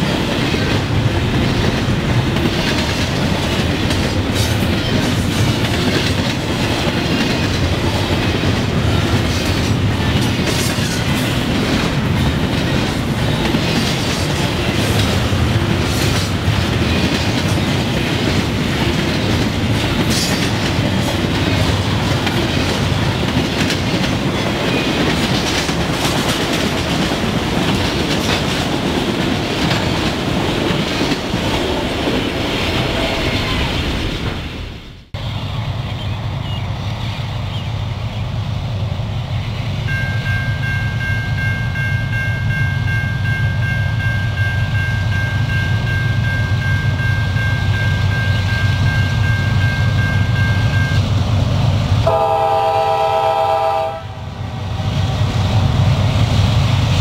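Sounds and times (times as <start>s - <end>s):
clicks and clanks of train cars: 0.0s - 36.6s
freight train rumbling past: 0.0s - 57.0s.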